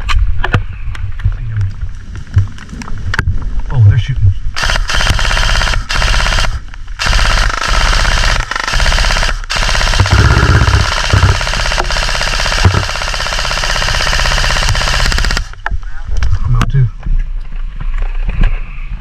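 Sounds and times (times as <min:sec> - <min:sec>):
airsoft guns firing rapid clicks: 0:04.6 - 0:15.6.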